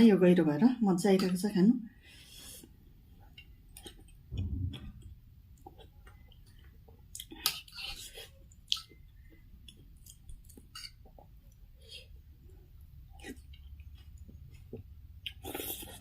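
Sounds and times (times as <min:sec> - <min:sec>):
person chewing noodle soup: 0:02.2 - 0:04.3, 0:05.7 - 0:16.0
low muffled thud: 0:04.3 - 0:05.5.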